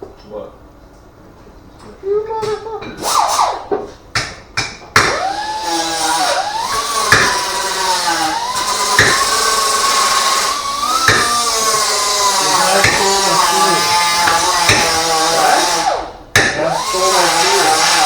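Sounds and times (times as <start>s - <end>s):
power tool whining: 5.0s - 18.0s.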